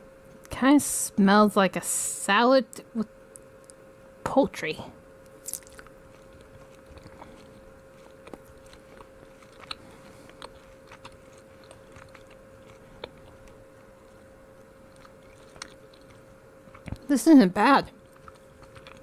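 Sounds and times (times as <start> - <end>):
mouth clicks and crunches: 5.2 - 17.1, 17.9 - 19.0
person chewing jerky: 5.2 - 17.1, 17.9 - 19.0.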